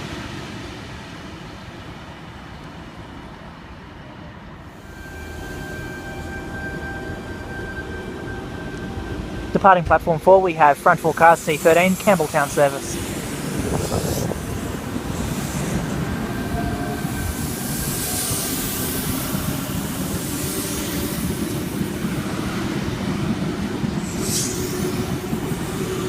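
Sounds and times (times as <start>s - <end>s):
train wheels rumbling on rail: 0.0s - 26.0s
high hissing wheel sweeps: 11.4s - 21.4s.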